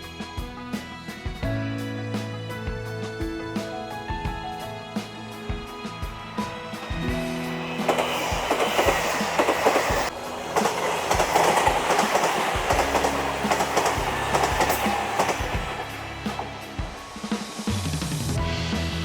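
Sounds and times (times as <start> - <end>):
train passing at speed: 3.8 - 19.0
wheels clacking over rail joints: 6.1 - 18.4.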